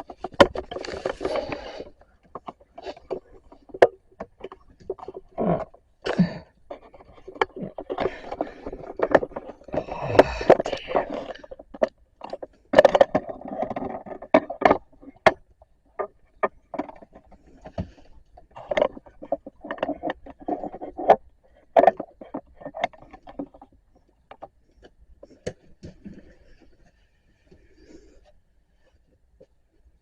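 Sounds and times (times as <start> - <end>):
objects scraping: 0.0 - 14.9
objects knocking and clicking: 0.0 - 26.9.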